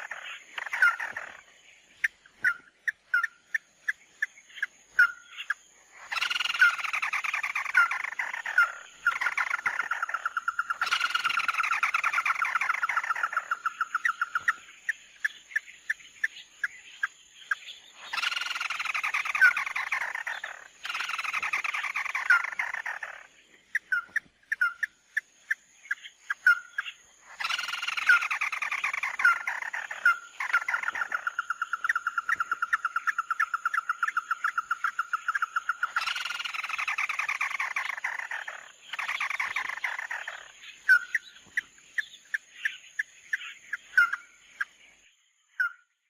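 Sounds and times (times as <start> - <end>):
bird trilling: 0.0 - 1.4, 4.6 - 14.6, 18.0 - 25.0, 26.3 - 44.3
sharp bird chirps: 0.0 - 46.0.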